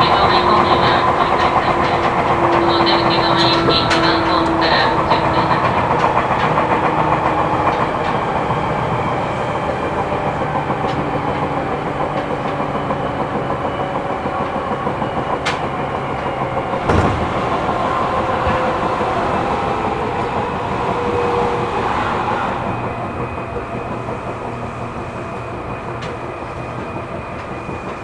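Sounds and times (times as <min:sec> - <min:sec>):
train wheels rumbling on rail: 0:00.0 - 0:28.0
wheel clack over rail joint: 0:16.8 - 0:18.8.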